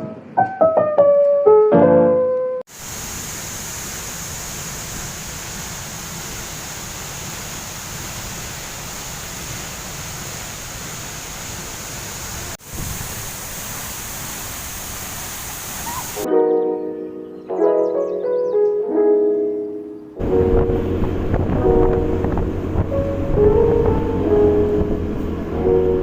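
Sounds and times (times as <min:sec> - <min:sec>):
waterfall rushing: 0:02.7 - 0:16.3.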